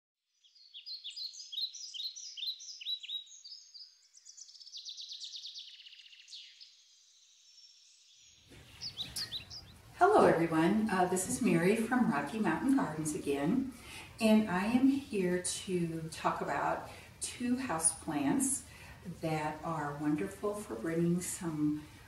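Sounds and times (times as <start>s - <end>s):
songbird singing: 0.3s - 16.7s.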